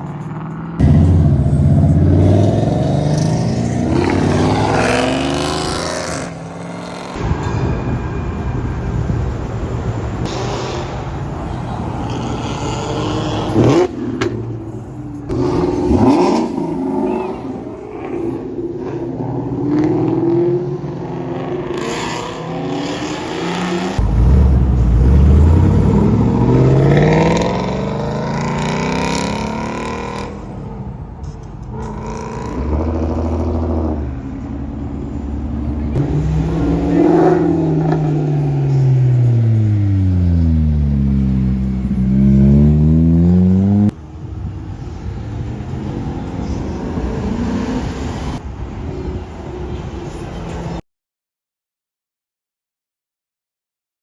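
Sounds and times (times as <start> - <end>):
cars accelerating hard: 0.2 - 7.3, 15.3 - 30.5, 35.5 - 44.0, 44.9 - 48.4.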